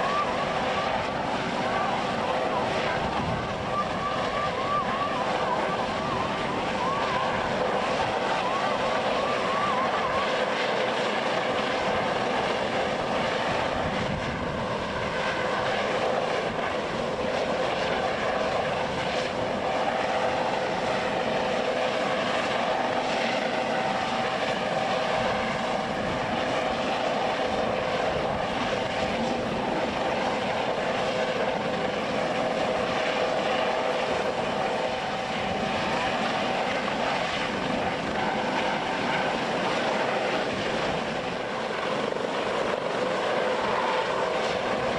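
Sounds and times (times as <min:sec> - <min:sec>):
aircraft engines droning: 0:00.0 - 0:44.9.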